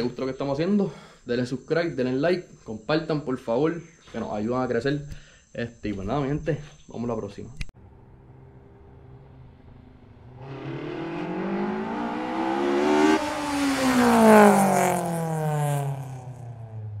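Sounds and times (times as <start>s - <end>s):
car engine revving and winding down: 7.8s - 17.0s.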